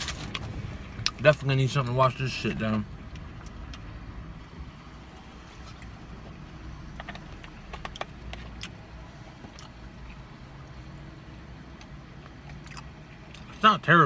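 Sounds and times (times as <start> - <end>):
vehicle engine hum: 0.0 - 14.0.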